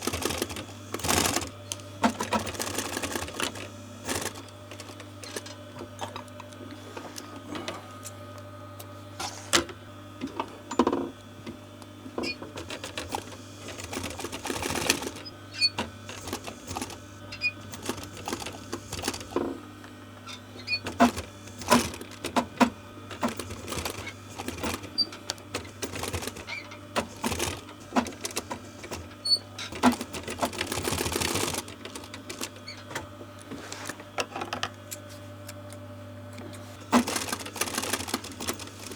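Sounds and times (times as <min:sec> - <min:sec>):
sewing machine stitching: 0:00.0 - 0:05.6, 0:12.2 - 0:19.5, 0:20.6 - 0:33.1, 0:36.9 - 0:38.9.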